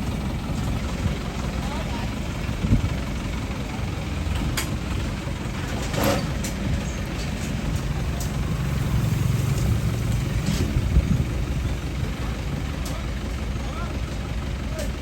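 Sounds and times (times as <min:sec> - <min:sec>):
harvester engine droning: 0:00.0 - 0:15.0.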